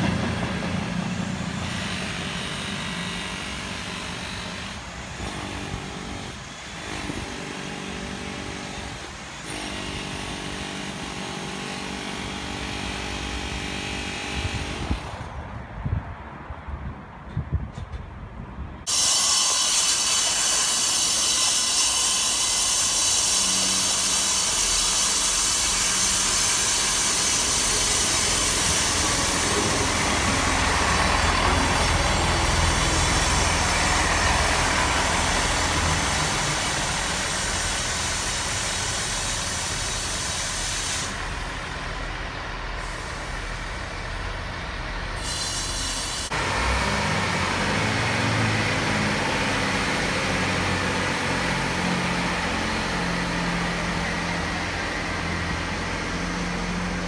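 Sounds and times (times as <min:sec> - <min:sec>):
diesel train engine idling: 0:00.0 - 0:05.2, 0:23.5 - 0:57.0
train rumbling along platform: 0:00.0 - 0:07.2, 0:25.5 - 0:57.0.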